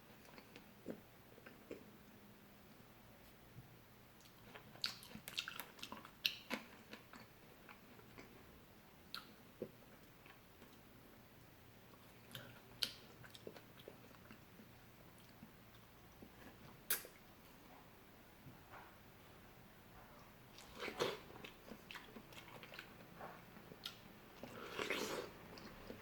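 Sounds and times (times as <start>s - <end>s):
person chewing fruit: 4.2s - 8.4s, 11.9s - 17.6s, 20.1s - 26.0s.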